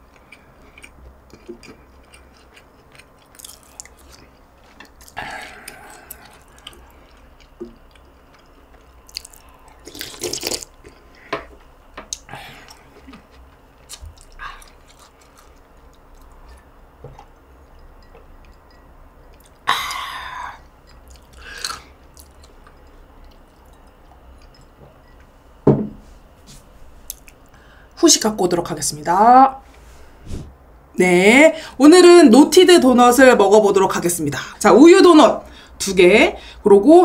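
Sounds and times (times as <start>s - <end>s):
person chewing: 0.0s - 11.2s, 12.1s - 24.8s.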